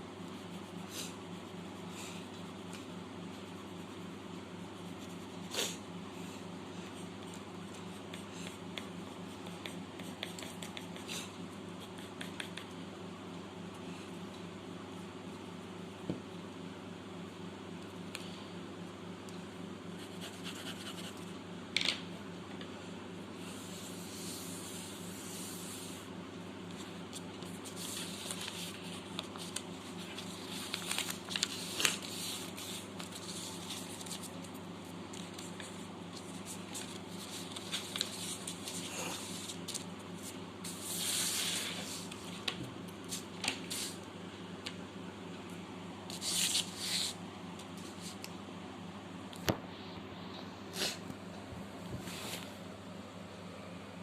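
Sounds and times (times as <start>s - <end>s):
steady low hum: 0.0s - 54.0s
pencil scratching on paper: 7.9s - 12.7s, 20.0s - 21.3s.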